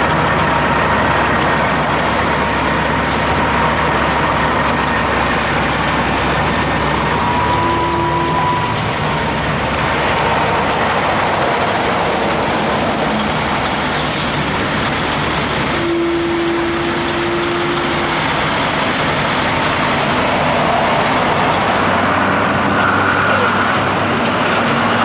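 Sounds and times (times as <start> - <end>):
highway traffic passing: 0.0 - 25.0.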